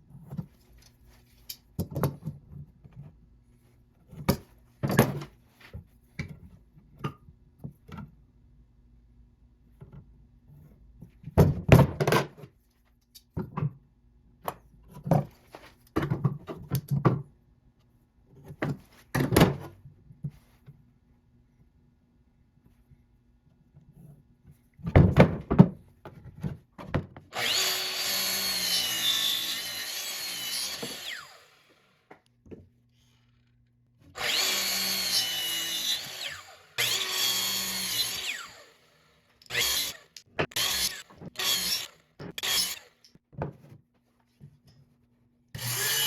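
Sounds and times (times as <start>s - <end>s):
wooden knocks and thunks: 24.8s - 27.2s.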